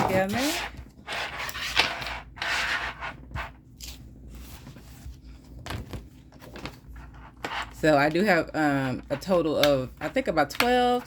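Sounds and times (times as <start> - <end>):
paper pages rustling: 3.8 - 7.1.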